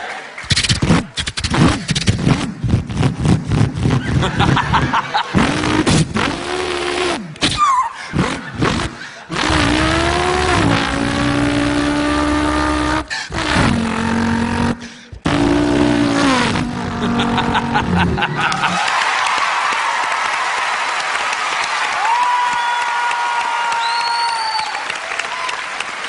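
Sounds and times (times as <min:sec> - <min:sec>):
man imitating car engine: 0:01.4 - 0:18.8.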